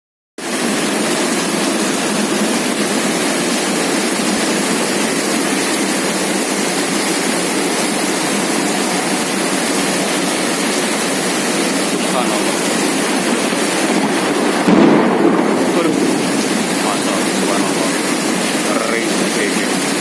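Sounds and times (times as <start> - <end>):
heavy rain pouring: 0.4 - 20.0.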